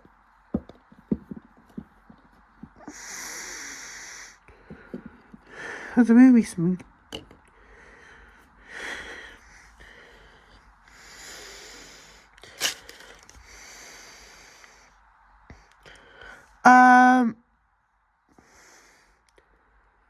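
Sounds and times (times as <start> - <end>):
breathy noises: 0.6 - 6.2, 7.4 - 15.0.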